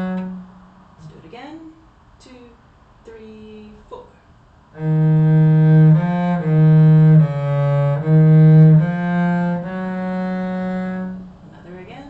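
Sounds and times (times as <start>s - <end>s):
cello bowing notes: 0.0s - 1.2s, 4.8s - 12.0s.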